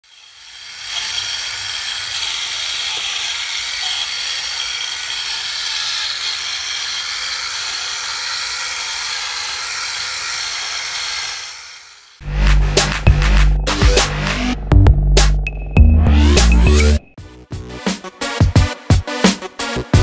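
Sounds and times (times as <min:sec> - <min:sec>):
mechanical whirr with rattling: 0:00.0 - 0:12.2.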